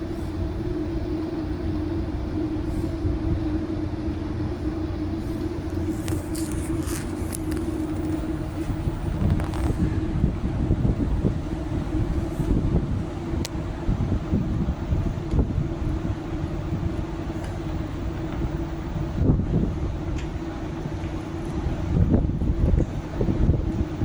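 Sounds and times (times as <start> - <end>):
low mechanical rumble and hum: 0.0 - 24.0
faint clicks and hisses: 5.3 - 9.9.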